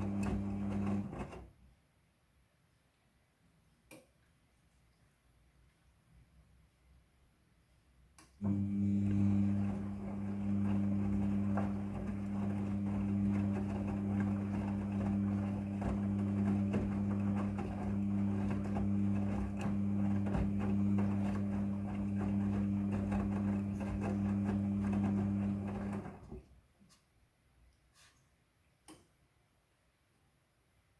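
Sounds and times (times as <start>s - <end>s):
washing machine humming: 0.0s - 1.5s, 8.4s - 26.5s.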